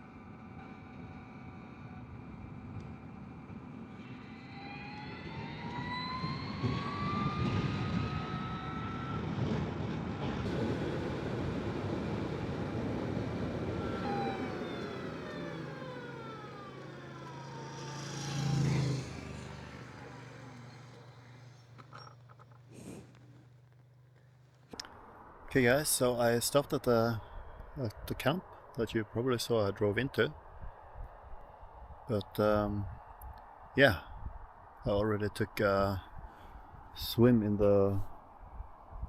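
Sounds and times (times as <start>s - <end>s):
wind and road noise: 0.0s - 39.0s
electric motorcycle motor whine: 0.5s - 9.6s, 10.5s - 23.3s.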